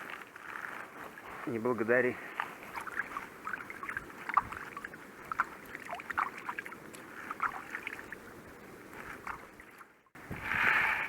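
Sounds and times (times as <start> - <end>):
water slapping against boat: 2.3 - 10.5
low wind rumble: 2.6 - 11.0.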